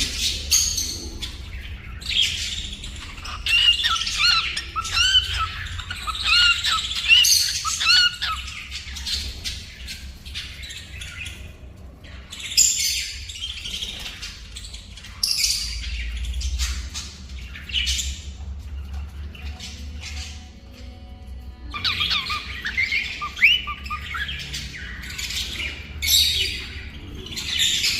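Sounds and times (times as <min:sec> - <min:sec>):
bird chirps and squawks: 0:00.0 - 0:17.2, 0:21.7 - 0:27.9
cockatiel whistling a song: 0:03.2 - 0:08.5, 0:21.8 - 0:24.3.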